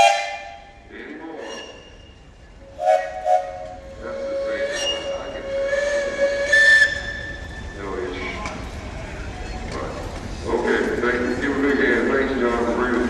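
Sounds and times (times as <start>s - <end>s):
steam whistle blowing: 0.0s - 0.7s, 2.7s - 7.5s.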